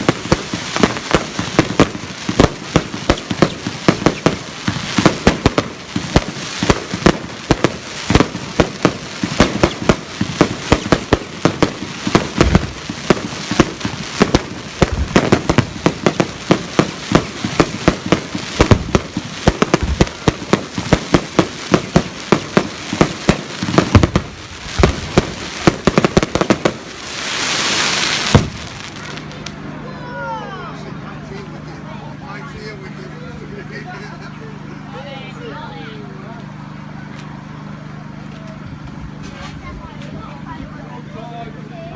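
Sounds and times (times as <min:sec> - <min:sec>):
fireworks bangs and crackles: 0:00.0 - 0:29.8
rising hiss: 0:21.5 - 0:29.8.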